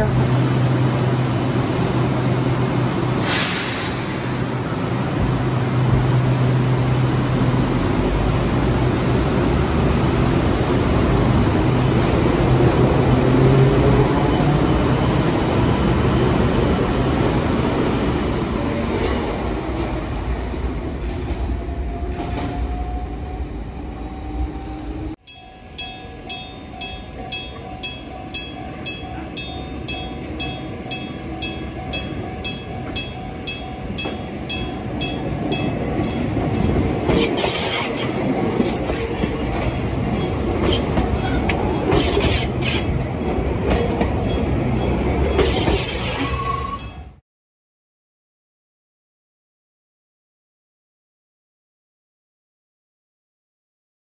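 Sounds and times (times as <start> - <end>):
train electric motors humming: 17.2 - 46.9
railway crossing bell ringing: 25.2 - 47.2
wheel and track noise: 25.3 - 47.0.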